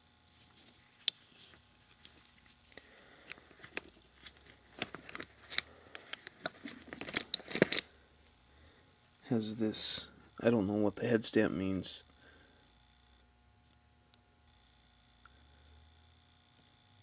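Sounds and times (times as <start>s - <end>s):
metal cartridges clicking: 3.6s - 7.9s.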